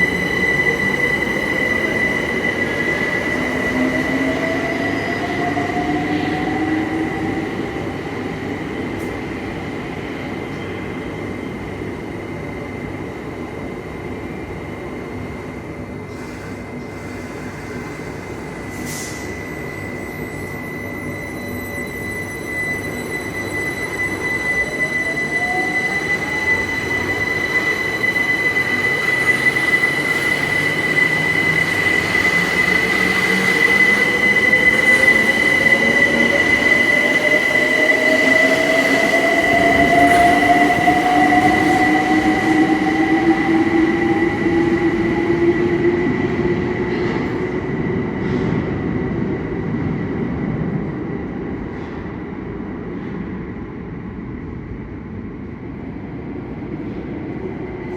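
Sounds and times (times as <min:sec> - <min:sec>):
steady high-pitched whistle: 0:18.8 - 0:49.6.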